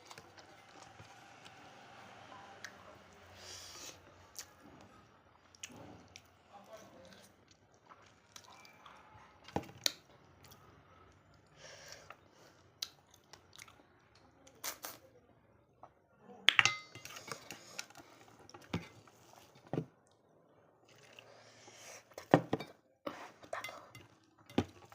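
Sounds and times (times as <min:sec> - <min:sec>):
chewing and mouth noises: 0:07.0 - 0:15.0.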